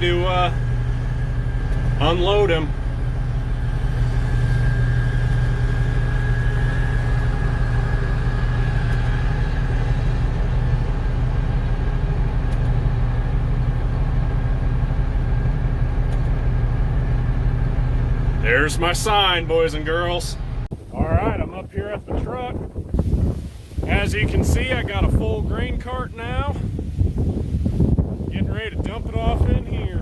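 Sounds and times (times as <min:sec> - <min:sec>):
tractor engine running: 0:00.0 - 0:30.0
thin high whine: 0:00.5 - 0:11.4.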